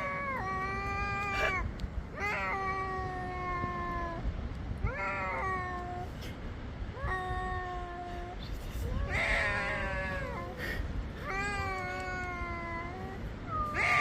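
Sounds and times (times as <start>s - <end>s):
cat meowing: 7.0s - 10.6s, 11.2s - 14.0s.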